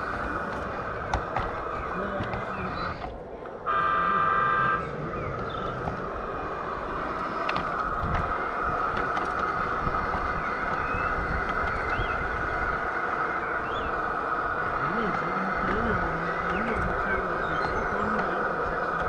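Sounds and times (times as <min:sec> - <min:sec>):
wheels rumbling on rails: 0:00.0 - 0:19.0
model train motor whine: 0:03.6 - 0:19.0.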